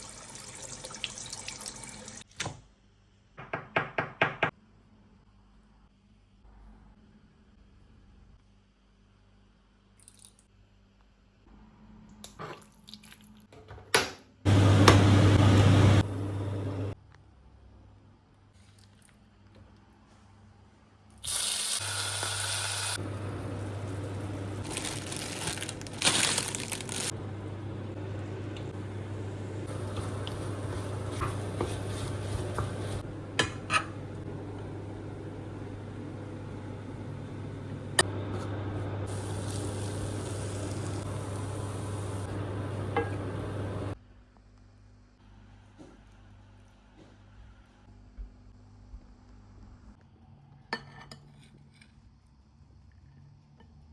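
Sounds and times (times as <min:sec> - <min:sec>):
water running from tap: 0:00.0 - 0:02.3, 0:28.4 - 0:33.1, 0:39.1 - 0:44.0
steady low hum: 0:27.1 - 0:44.0.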